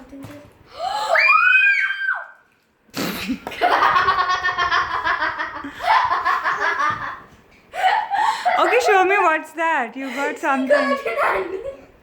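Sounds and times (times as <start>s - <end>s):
girls laughing: 3.2s - 9.2s.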